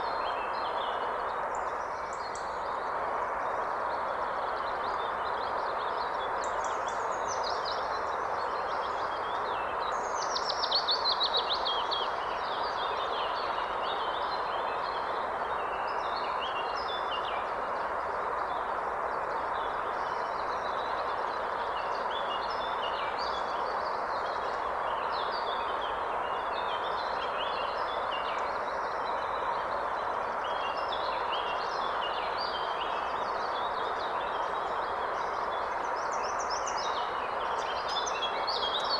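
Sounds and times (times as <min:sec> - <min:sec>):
songbirds singing: 0:29.2 - 0:38.9.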